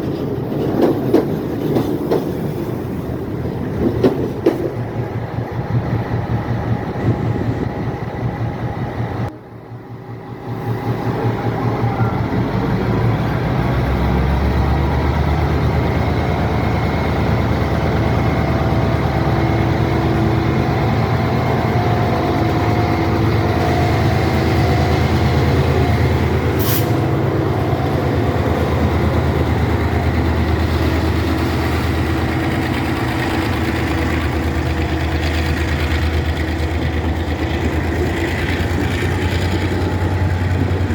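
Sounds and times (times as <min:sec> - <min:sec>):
diesel locomotive engine rumbling: 0:00.0 - 0:40.9
short sharp hiss: 0:26.6 - 0:27.0.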